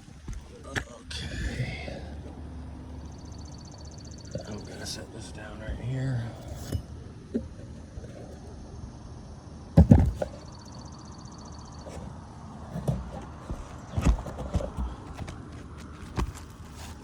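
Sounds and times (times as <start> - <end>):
knocks and scuffs on shingle roof: 9.8 - 10.5, 11.8 - 17.0.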